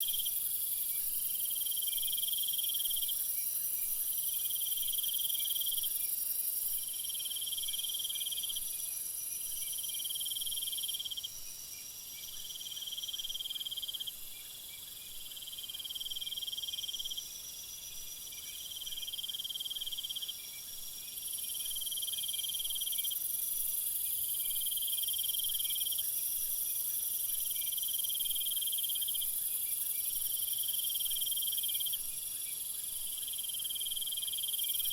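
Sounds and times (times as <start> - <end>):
insects chirping: 0.0 - 34.9.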